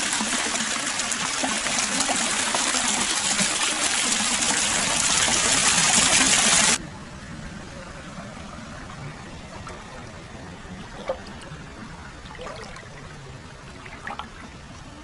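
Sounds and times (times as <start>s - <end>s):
water splashes: 0.0s - 6.8s, 8.9s - 15.0s
water trickling and pouring: 0.0s - 6.8s, 10.8s - 14.6s.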